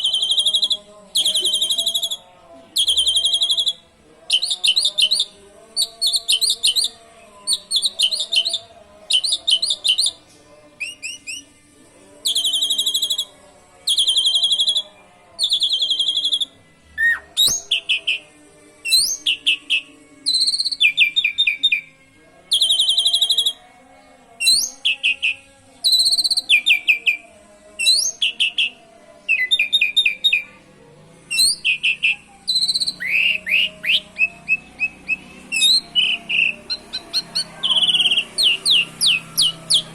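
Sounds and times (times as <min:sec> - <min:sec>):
bird singing trilled phrases: 0:31.4 - 0:39.9.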